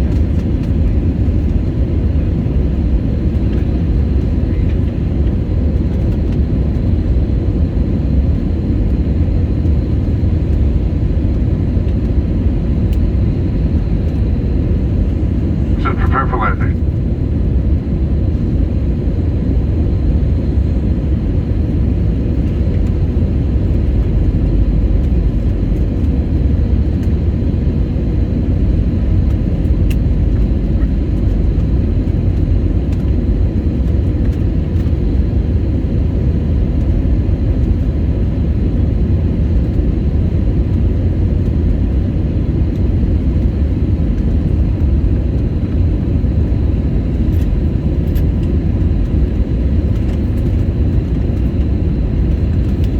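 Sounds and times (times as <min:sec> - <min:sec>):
jet engines rumbling in cabin: 0:00.0 - 0:52.9
faint steady hum: 0:12.8 - 0:16.9.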